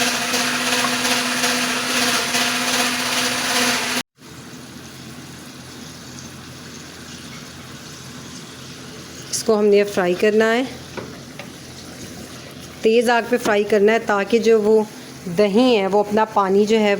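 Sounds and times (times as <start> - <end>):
kitchen appliance motor humming: 0.0 - 4.0
oil sizzling in a pan: 4.2 - 9.9.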